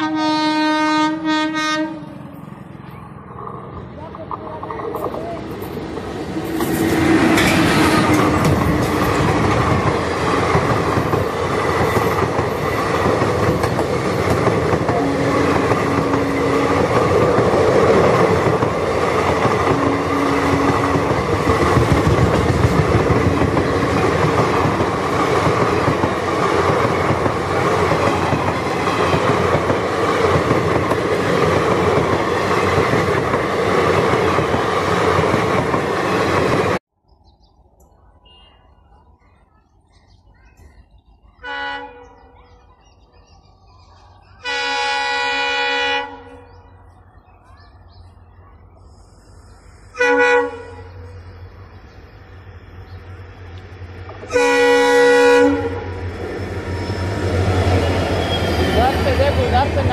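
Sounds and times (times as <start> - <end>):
passenger train rumbling past: 0.0 - 59.9
wheels clattering over rail joints: 3.5 - 19.9.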